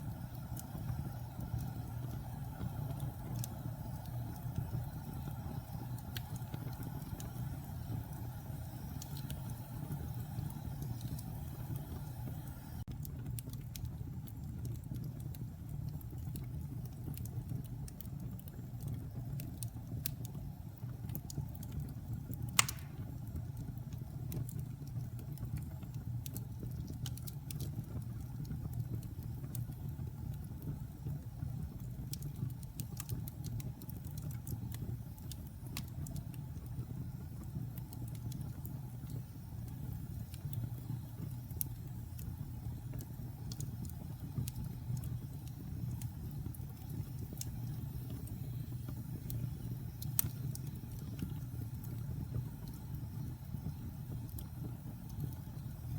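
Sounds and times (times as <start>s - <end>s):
log fire crackling: 0.0s - 55.9s
sharp loud pop of fire: 22.6s - 23.1s.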